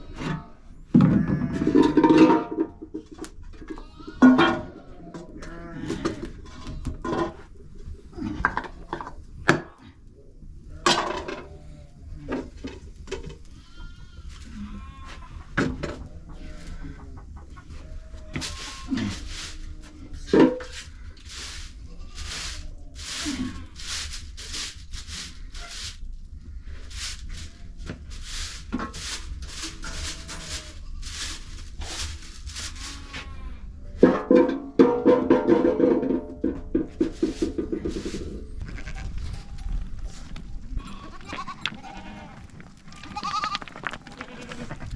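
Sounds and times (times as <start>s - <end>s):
goats and sheep bleating: 0.0s - 2.2s, 3.6s - 7.1s, 13.4s - 26.0s, 26.8s - 34.2s, 37.2s - 39.8s, 40.7s - 44.9s
scraping or rustling noises: 0.0s - 9.8s, 10.7s - 44.9s.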